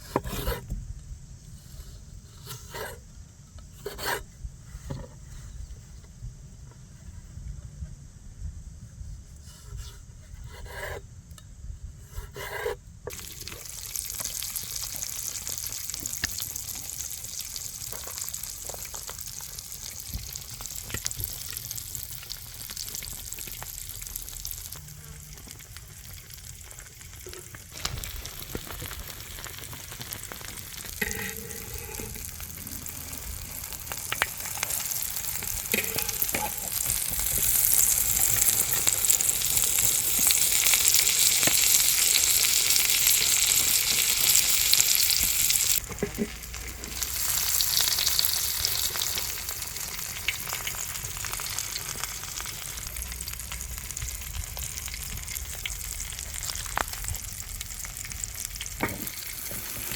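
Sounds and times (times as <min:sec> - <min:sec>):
food sizzling in a pan: 0:13.1 - 0:59.9.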